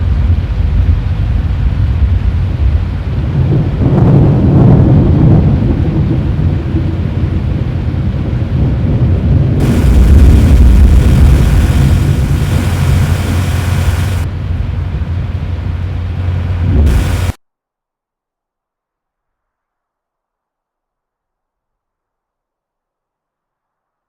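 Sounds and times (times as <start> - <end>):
loud thunder rumble: 8.9 - 17.4
heavy rain hiss: 9.6 - 17.4.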